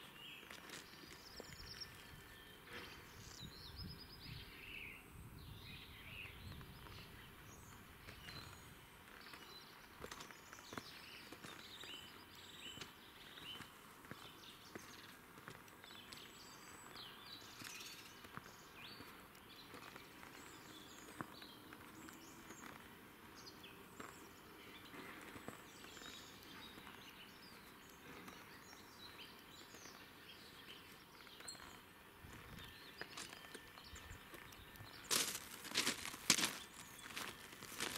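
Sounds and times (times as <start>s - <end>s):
small birds chirping: 0.0s - 37.9s
soft steps on ballast: 34.3s - 37.9s.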